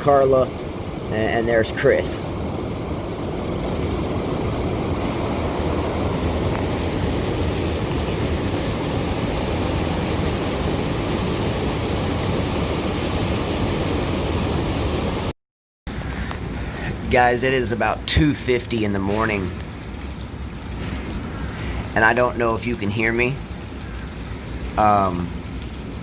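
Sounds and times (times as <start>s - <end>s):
roaring wind: 0.0s - 15.3s.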